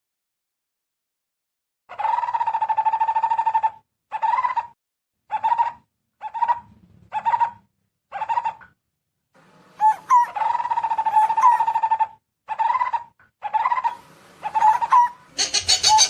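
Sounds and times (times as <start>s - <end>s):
bird pulsing call: 9.8s - 12.9s, 13.5s - 16.0s.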